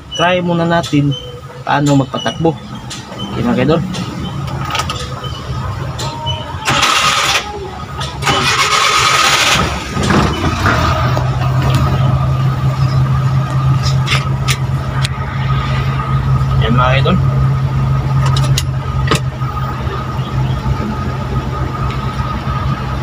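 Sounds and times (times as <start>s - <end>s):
van engine idling: 0.0s - 23.0s
starter motor cranking: 6.6s - 7.5s, 8.2s - 10.2s.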